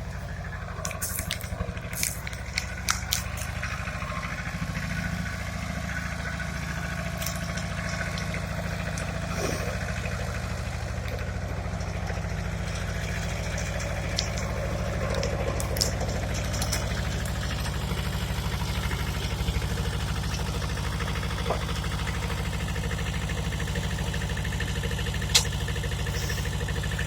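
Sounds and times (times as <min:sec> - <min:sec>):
tractor engine idling: 0:00.0 - 0:27.0
sharp clicks: 0:25.3 - 0:26.3.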